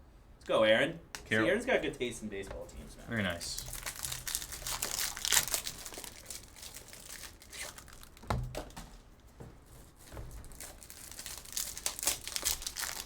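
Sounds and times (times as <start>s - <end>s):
foil wrappers crinkling and tearing: 3.4s - 8.8s, 9.9s - 13.0s.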